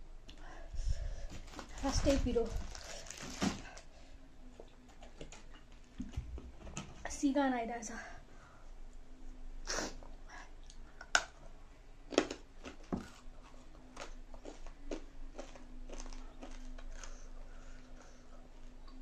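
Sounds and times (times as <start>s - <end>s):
chewing noodles: 12.1s - 19.0s.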